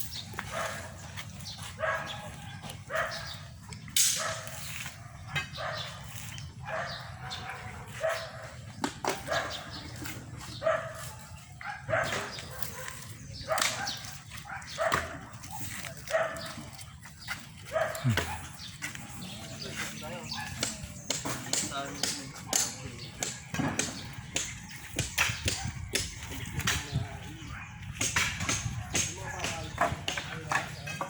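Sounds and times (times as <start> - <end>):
dog barking: 0.4 - 3.5, 4.1 - 20.7.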